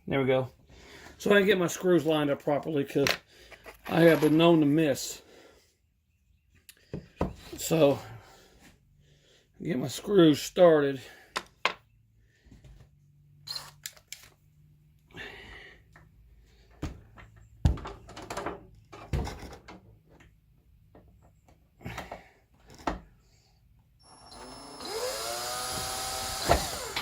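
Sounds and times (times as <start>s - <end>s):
cordless drill motor whining: 24.0s - 27.0s.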